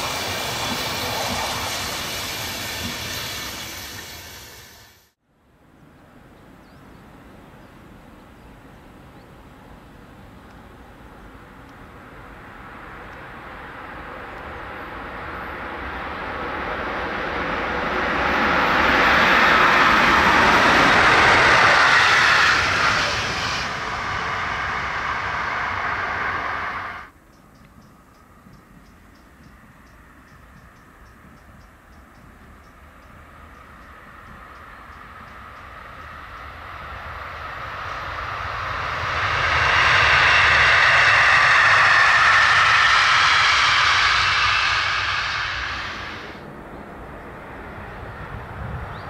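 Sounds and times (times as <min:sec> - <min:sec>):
train rushing past: 0:00.0 - 0:05.2, 0:10.8 - 0:27.2, 0:32.3 - 0:49.0.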